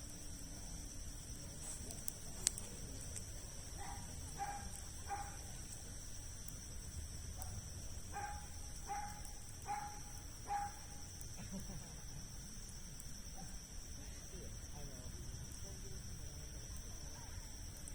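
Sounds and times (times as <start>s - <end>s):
insects chirring: 0.0s - 17.9s
dog barking faintly: 3.7s - 5.7s, 7.4s - 11.0s, 16.6s - 17.9s.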